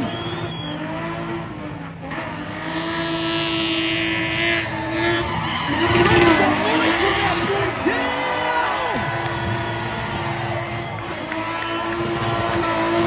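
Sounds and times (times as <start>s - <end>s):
car engine at high revs: 0.0s - 13.0s
tyres screeching: 3.5s - 13.0s.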